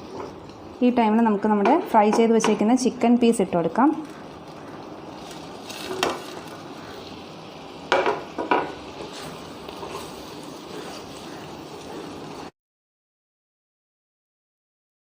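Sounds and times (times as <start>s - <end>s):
sauce sizzling in a pan: 0.0s - 12.5s
sharp knocks against a pan: 7.9s - 8.8s.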